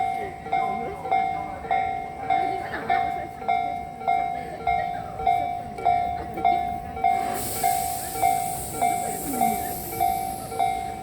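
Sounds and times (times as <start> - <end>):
level crossing warning bell: 0.0 - 11.0
hiss: 7.2 - 10.7.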